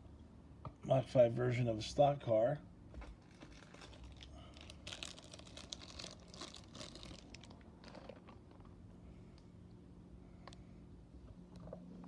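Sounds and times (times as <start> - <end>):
plastic crinkling and rustling: 2.9 - 8.8.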